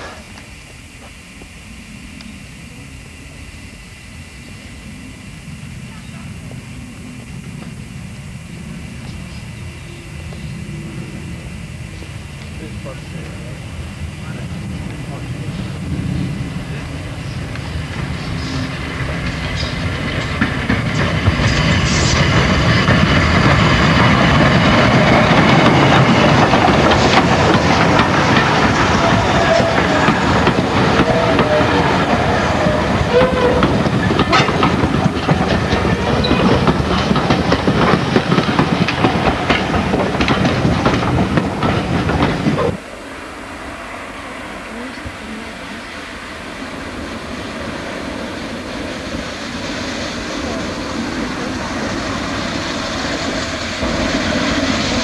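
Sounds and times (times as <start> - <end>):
faint wavering squeal: 0.0 - 13.7, 28.4 - 34.5, 35.8 - 36.6
train wheels clattering on rail joints: 14.2 - 42.8.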